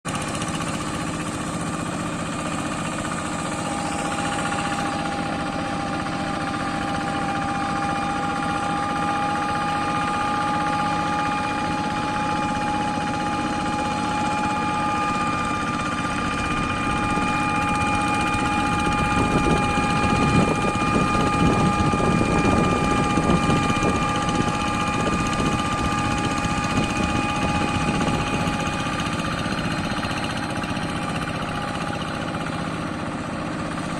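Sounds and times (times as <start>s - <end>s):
tractor engine running: 0.0s - 33.9s
steady high whine: 0.1s - 33.9s.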